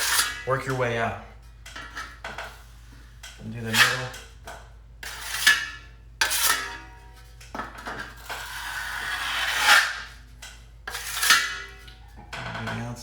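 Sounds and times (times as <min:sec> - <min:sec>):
trowel scraping joint compound: 0:00.0 - 0:01.0, 0:03.4 - 0:04.3, 0:05.0 - 0:06.9, 0:07.9 - 0:10.2, 0:10.9 - 0:11.8.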